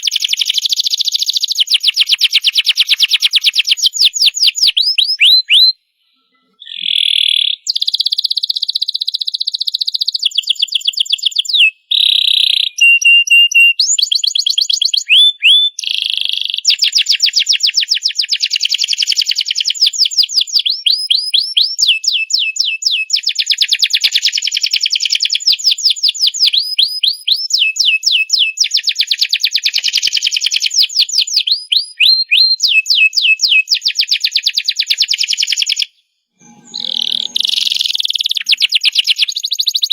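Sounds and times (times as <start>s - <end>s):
canary singing: 0.0s - 16.8s, 34.8s - 39.9s.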